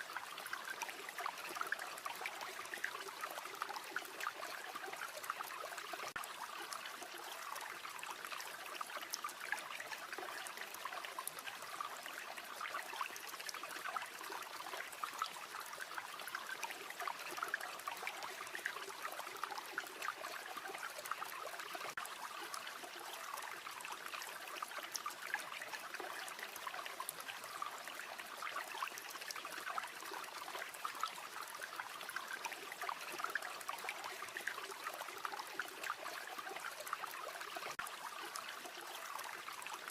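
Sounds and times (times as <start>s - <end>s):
stream trickling and babbling: 0.0s - 39.9s.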